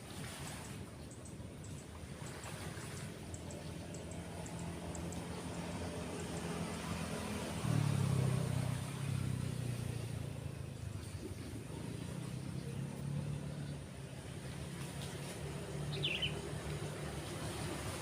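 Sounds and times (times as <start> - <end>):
vehicle engine passing: 2.3 - 18.0.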